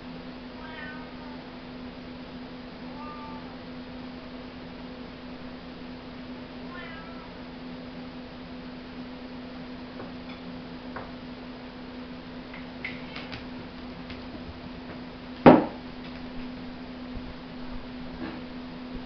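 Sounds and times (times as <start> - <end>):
steady low hum: 0.0 - 19.0
sharp knock: 15.5 - 15.8.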